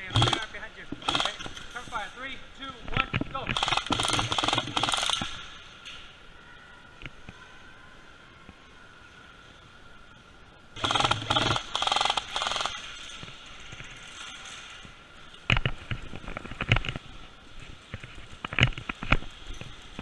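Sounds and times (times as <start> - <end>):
airsoft gun rapid clicking bursts: 0.0 - 1.6, 3.5 - 5.4, 10.8 - 12.9.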